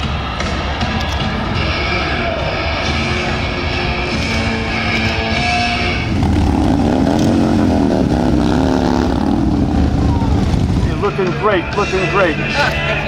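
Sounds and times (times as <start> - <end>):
music: 0.0 - 6.9, 10.0 - 13.0
motorcycle engine running: 0.0 - 13.0.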